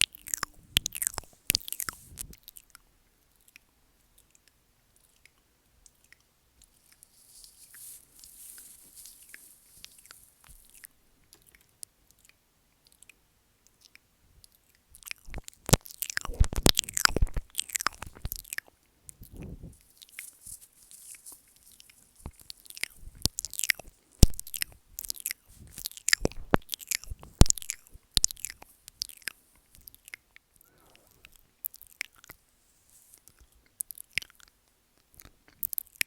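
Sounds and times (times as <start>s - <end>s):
wet mouth smacks: 0.0s - 2.7s, 15.0s - 19.7s, 22.2s - 30.2s
tongue clicks: 0.0s - 7.1s, 9.3s - 20.2s, 21.7s - 32.4s, 33.2s - 36.0s
licking and nibbling noises: 0.0s - 36.0s.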